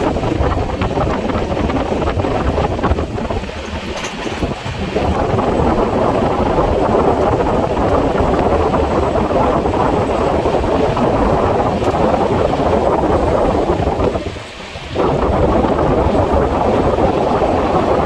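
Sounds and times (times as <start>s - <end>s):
train wheels on rails: 0.0s - 18.0s
wind: 0.0s - 18.0s.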